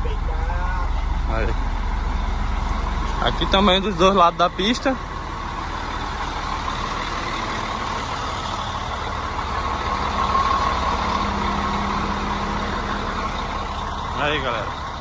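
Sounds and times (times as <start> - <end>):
low hum: 0.0 - 15.0
truck engines idling: 0.0 - 15.0.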